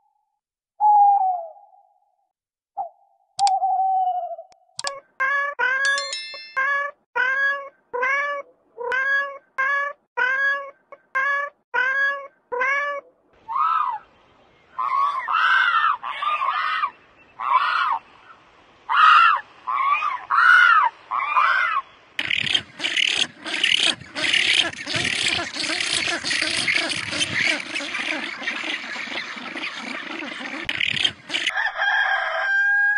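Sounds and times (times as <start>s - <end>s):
rough animal calls: 18.9s - 32.9s.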